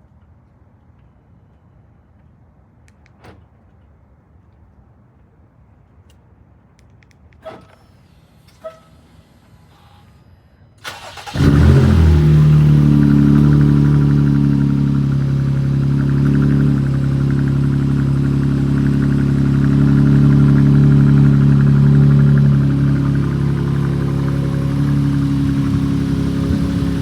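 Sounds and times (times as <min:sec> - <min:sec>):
starter motor cranking: 0:10.8 - 0:12.6
car engine idling: 0:10.8 - 0:27.0.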